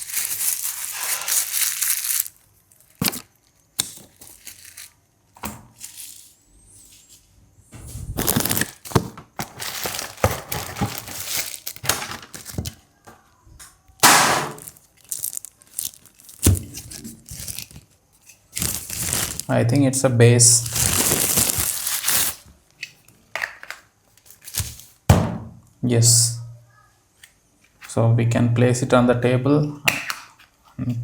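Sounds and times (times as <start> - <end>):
packaging rustling: 0.0 - 5.0, 8.1 - 12.8, 14.3 - 19.6, 20.5 - 22.5.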